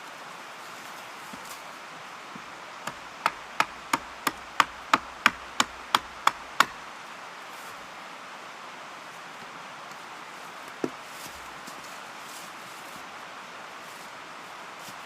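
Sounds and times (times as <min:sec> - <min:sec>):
hand tool striking wood: 0:02.8 - 0:06.8.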